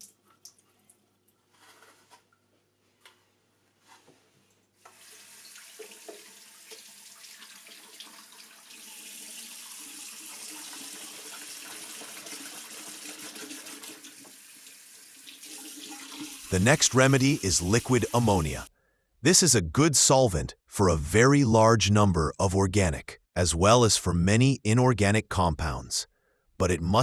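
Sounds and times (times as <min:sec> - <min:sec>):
tap water running into sink: 0:04.9 - 0:18.7.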